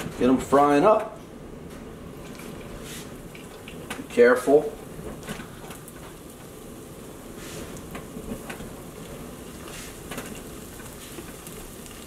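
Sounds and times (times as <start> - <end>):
battered fish frying in oil: 2.1 - 12.0
faint crackles: 4.8 - 12.0.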